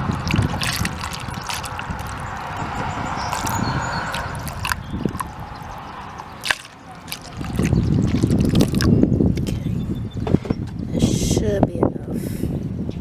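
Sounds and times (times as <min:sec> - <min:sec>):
liquid trickling and gurgling: 0:00.0 - 0:09.6
loud low rumbling: 0:00.0 - 0:11.0.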